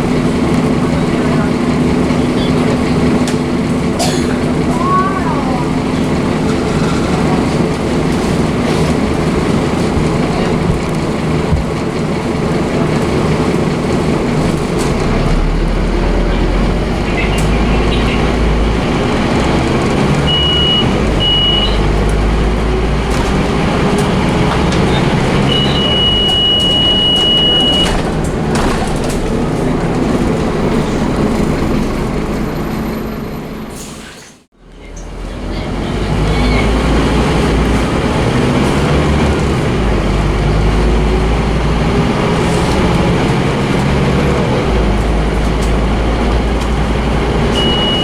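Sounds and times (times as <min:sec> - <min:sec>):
bus diesel engine under load: 0:00.0 - 0:48.0
high beeping tone: 0:25.5 - 0:27.9.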